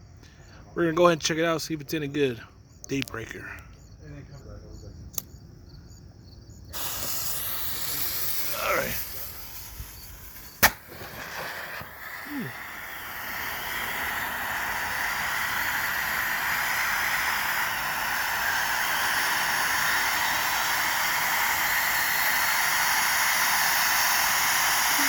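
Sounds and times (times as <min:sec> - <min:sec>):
firework fountain hissing: 0:06.7 - 0:25.0.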